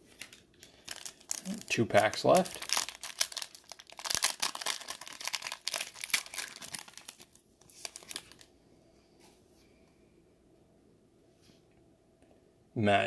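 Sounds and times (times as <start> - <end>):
plastic wrapper crinkling and tearing: 0.0 - 8.5.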